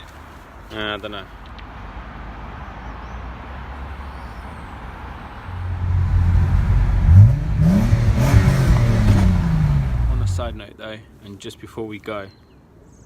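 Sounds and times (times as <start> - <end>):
car engine pulling away: 3.6 - 10.6.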